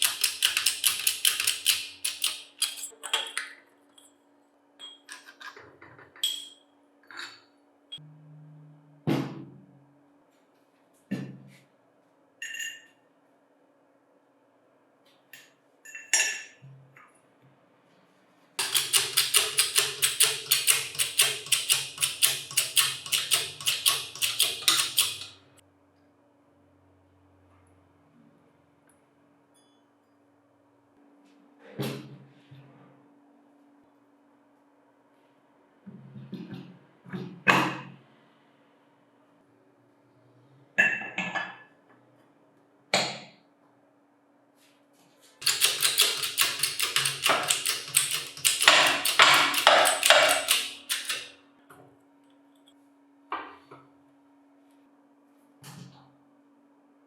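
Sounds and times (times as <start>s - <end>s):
sharp clicks: 0.0s - 2.9s, 18.6s - 25.4s, 45.4s - 51.3s
metal-on-metal tapping: 0.0s - 3.3s, 18.6s - 25.5s, 45.4s - 51.3s
metal tools clinking: 0.0s - 3.4s, 45.4s - 51.3s.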